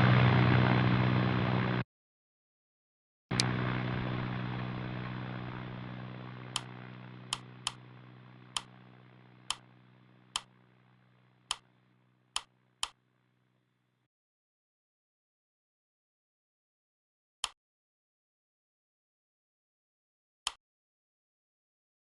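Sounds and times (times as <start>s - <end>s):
turboprop engine hum: 0.0s - 1.8s, 3.3s - 13.3s.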